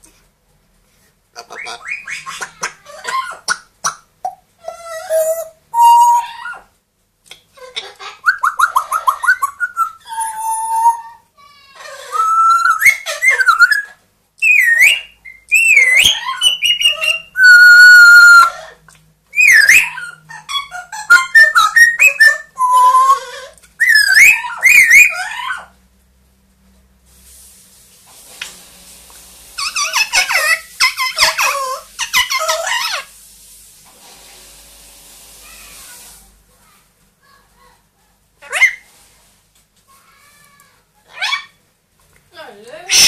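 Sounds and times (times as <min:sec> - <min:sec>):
parrot whistling and calling: 0:01.4 - 0:04.0, 0:04.6 - 0:06.7, 0:07.6 - 0:25.7, 0:29.6 - 0:33.1, 0:38.4 - 0:38.9, 0:41.1 - 0:41.6.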